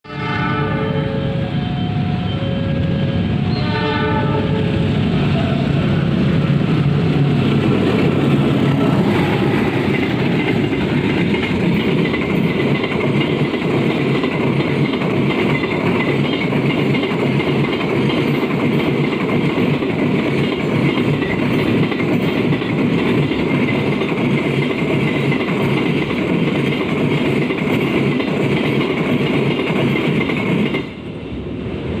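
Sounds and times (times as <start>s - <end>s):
train wheels clattering on track: 6.2s - 31.2s.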